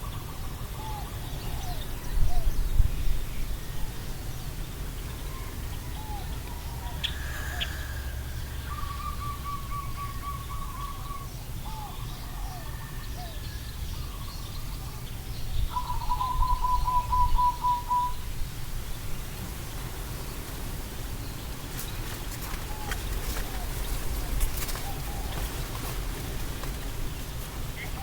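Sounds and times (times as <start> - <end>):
bird chirps: 3.8 - 18.2.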